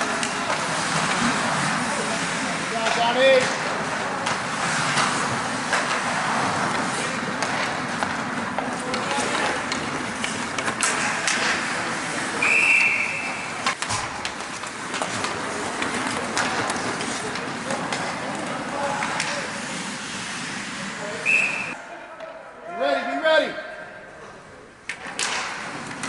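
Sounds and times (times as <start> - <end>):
outdoor background noise: 0.0 - 26.0
referee's whistle blast: 12.4 - 13.3
faint voices: 14.8 - 22.9.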